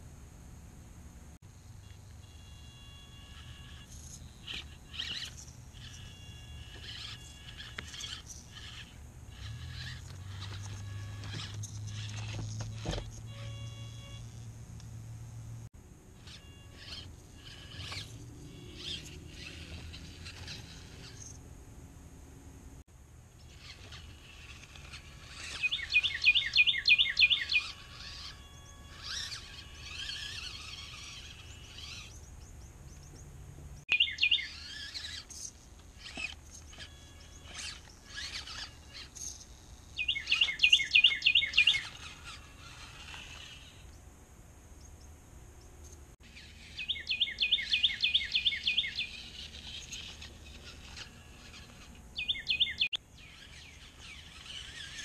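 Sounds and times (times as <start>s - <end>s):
birds chirping faintly: 16.2s - 55.0s
songbird singing trilled phrases: 25.2s - 42.8s, 44.8s - 55.0s.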